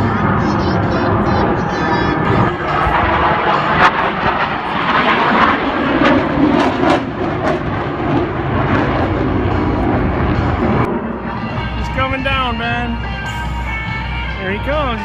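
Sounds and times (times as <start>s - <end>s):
fighter jet engine roar: 0.0s - 15.0s.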